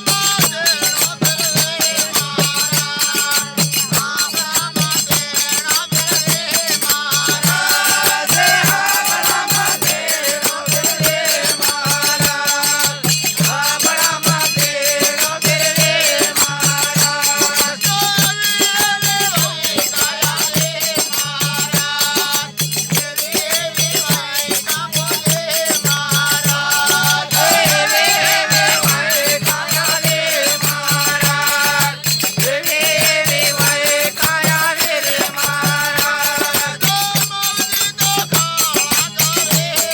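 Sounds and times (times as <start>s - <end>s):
jingling rattle percussion: 0.0s - 39.9s
steady drum beat: 0.0s - 39.9s
devotional song melody: 7.0s - 20.1s, 24.8s - 36.7s.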